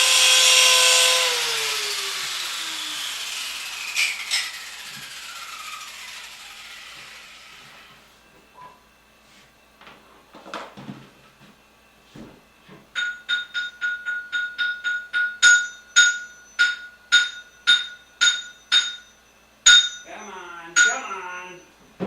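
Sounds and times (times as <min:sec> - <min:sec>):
metallic ringing strikes: 0:13.0 - 0:21.6.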